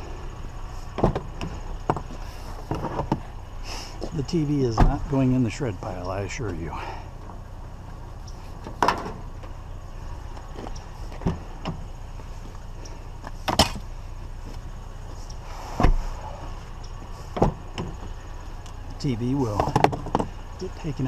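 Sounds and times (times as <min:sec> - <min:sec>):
steady low hum: 0:00.0 - 0:21.0
scrap knocks and clunks: 0:00.9 - 0:03.3, 0:08.6 - 0:09.6, 0:17.3 - 0:18.2, 0:19.5 - 0:20.4.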